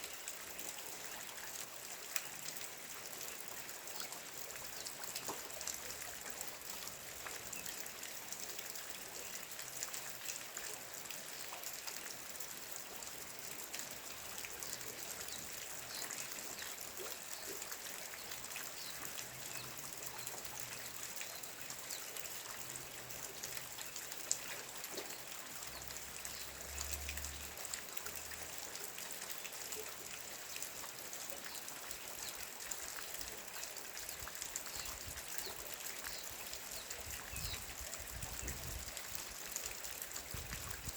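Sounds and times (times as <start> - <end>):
rain patter: 0.0 - 40.9.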